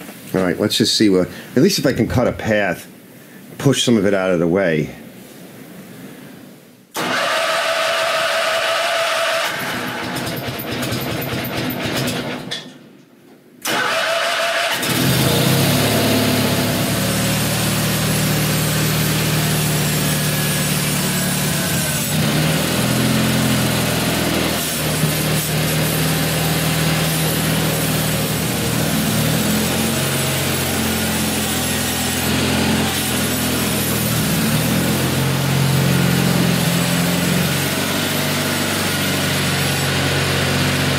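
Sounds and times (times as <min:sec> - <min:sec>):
tractor engine running under load: 0:14.8 - 0:40.9.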